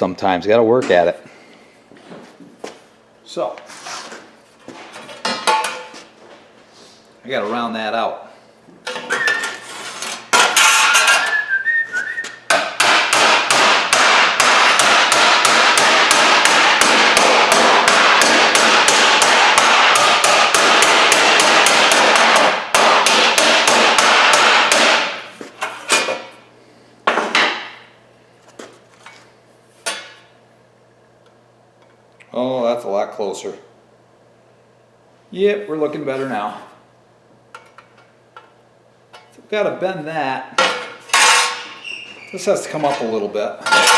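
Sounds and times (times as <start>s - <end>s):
hammer pounding sheet metal: 12.5s - 25.3s.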